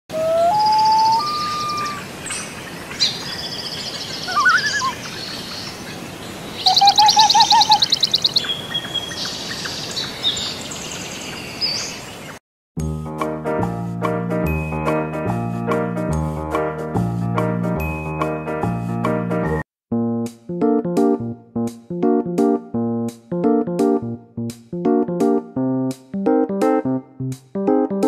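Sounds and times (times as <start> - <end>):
songbirds singing: 0.1 - 12.4.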